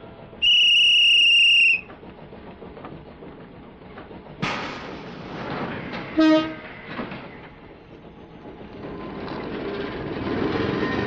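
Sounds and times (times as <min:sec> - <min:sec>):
train running noise: 0:00.0 - 0:11.0
train horn toot: 0:06.2 - 0:06.7.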